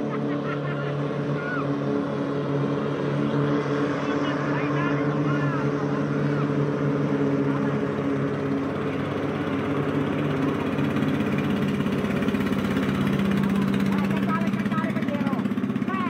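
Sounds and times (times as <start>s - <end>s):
racing boat engines droning: 0.0s - 16.0s.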